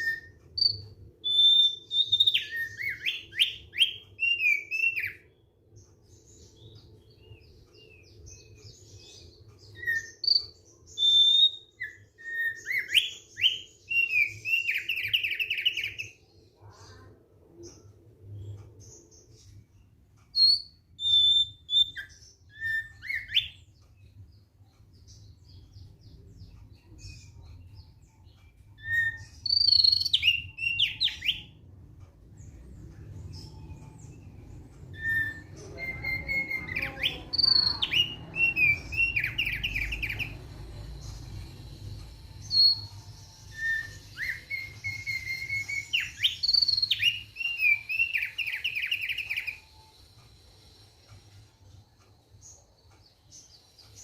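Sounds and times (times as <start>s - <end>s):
bird whistling and trilling: 0.0s - 5.2s, 9.7s - 16.2s, 20.4s - 23.7s, 28.7s - 31.6s, 34.9s - 40.4s, 42.0s - 49.7s.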